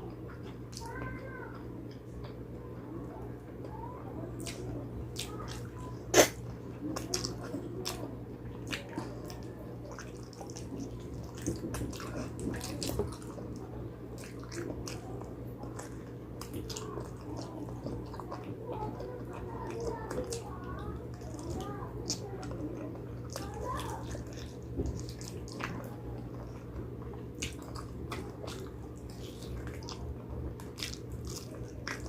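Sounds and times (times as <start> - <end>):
wet chewing and mouth smacks: 4.4 - 13.5, 23.3 - 32.0.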